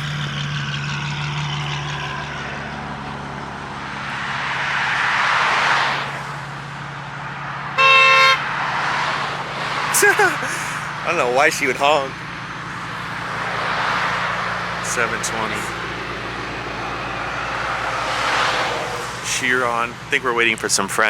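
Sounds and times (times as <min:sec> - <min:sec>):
car idling: 0:00.0 - 0:21.0
passing traffic: 0:00.0 - 0:21.0
car horn honk: 0:07.8 - 0:08.5.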